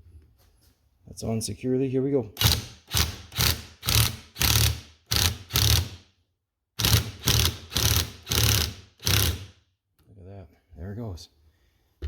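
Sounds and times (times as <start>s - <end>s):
ratchet wrench clicking: 6.8s - 9.5s.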